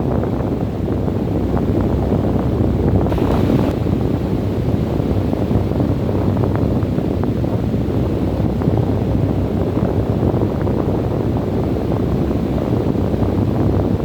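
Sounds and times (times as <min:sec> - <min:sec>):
wind blowing: 0:03.1 - 0:04.3.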